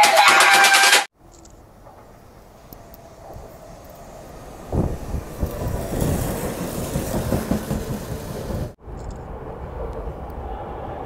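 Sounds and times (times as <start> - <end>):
wheels clattering on rails: 1.5 - 9.3
electric train rumbling past: 1.5 - 11.0.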